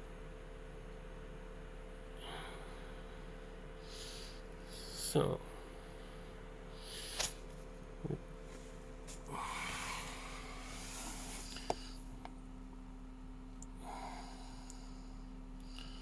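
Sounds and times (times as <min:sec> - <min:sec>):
electrical hum: 0:00.0 - 0:16.0
soft breaths: 0:02.2 - 0:07.4, 0:08.4 - 0:12.2, 0:13.7 - 0:16.0.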